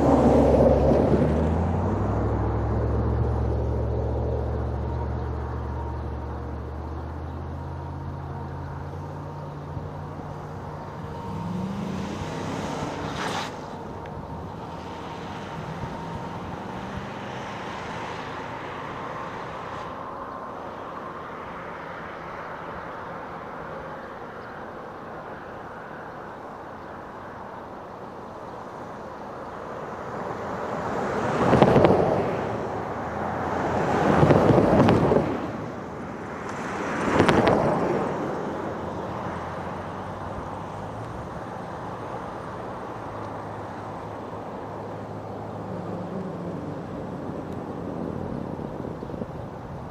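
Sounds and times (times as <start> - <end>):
diesel locomotive engine rumbling: 0.0 - 21.2.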